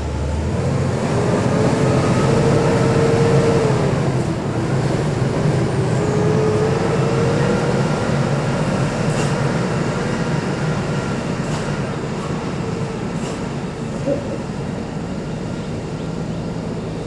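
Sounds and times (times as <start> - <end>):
truck engine drone: 0.0 - 17.0.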